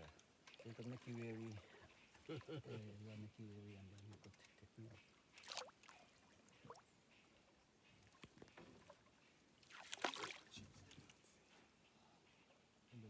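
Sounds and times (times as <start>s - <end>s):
water splashing at a boat: 5.1s - 6.9s, 8.7s - 11.1s.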